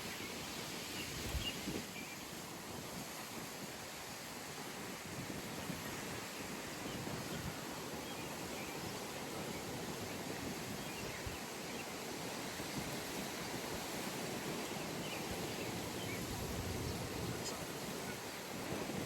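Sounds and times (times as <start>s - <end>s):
wind rushing: 16.2s - 17.4s.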